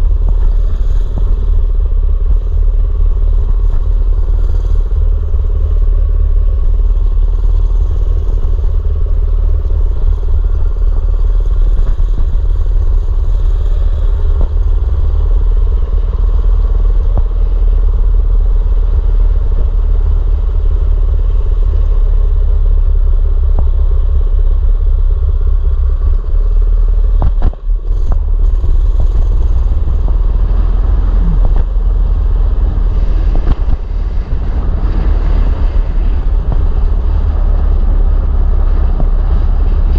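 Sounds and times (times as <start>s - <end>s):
mini bike engine running: 0.0s - 26.4s, 27.2s - 39.9s
wind rumble on microphone: 0.0s - 39.9s.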